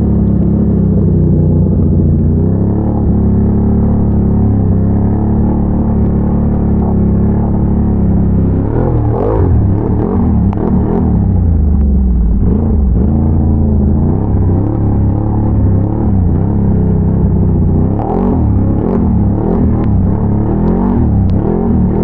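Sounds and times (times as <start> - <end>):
atv engine revving under load: 0.0 - 22.0.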